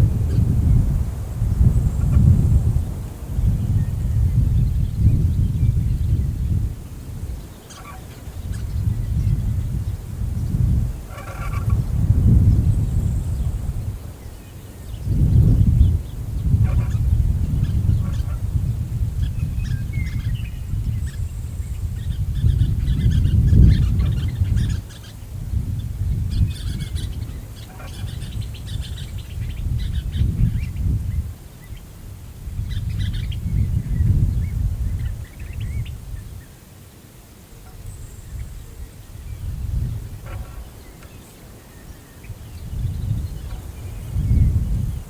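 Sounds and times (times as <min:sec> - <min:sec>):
wind gusting over microphone: 0:00.0 - 0:45.0
birds chirping and calling: 0:07.3 - 0:25.2, 0:25.8 - 0:31.0, 0:32.6 - 0:36.3, 0:37.7 - 0:45.0.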